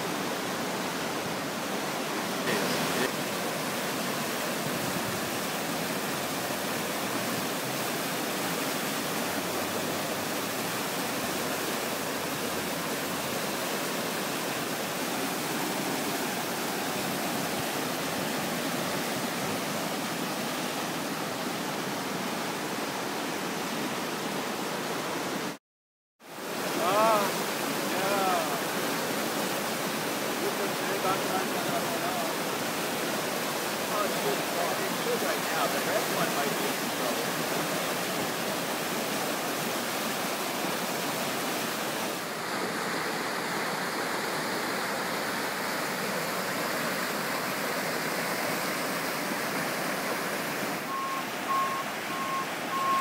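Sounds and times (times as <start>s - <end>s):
floodwater rushing: 0.0s - 25.6s, 26.2s - 53.0s
person speaking: 2.4s - 3.2s, 26.7s - 28.7s.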